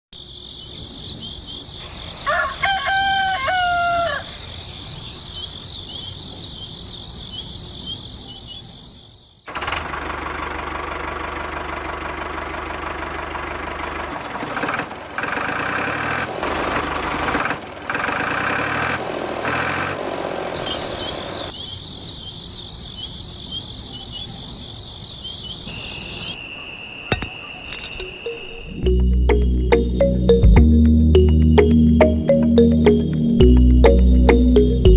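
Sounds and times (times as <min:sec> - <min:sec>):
rooster crowing: 0:02.2 - 0:04.4
insect chirring: 0:04.2 - 0:09.4, 0:20.7 - 0:28.9.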